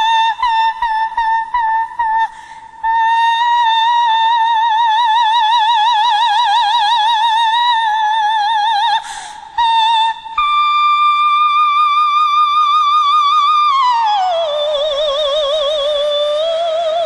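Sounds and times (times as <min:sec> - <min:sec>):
singer breathing in: 0:02.3 - 0:02.8, 0:09.0 - 0:09.6.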